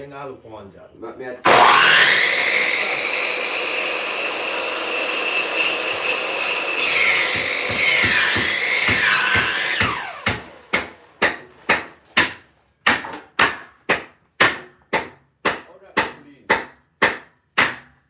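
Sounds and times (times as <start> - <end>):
power saw: 1.4 - 11.6
hammer striking wood: 5.6 - 18.0.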